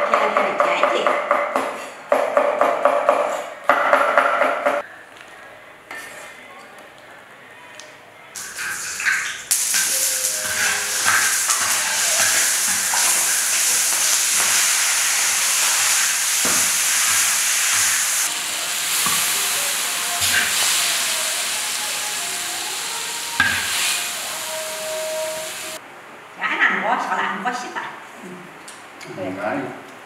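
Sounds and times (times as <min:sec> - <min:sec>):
food sizzling in oil: 0:08.4 - 0:25.8.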